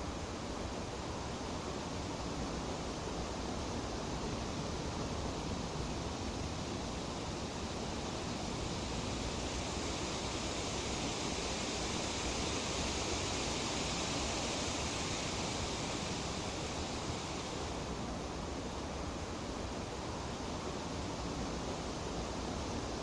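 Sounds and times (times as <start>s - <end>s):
leaves rustling in breeze: 5.8s - 18.8s.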